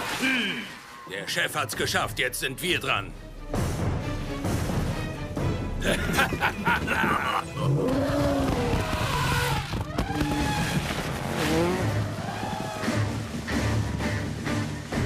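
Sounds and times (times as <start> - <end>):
cartoon vehicles revving: 7.6 - 13.8.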